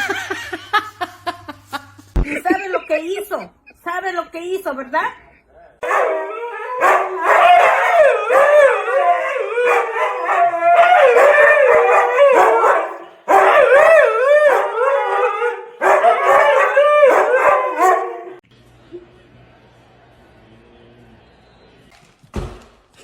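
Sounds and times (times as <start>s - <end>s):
dog howling: 5.8s - 18.4s.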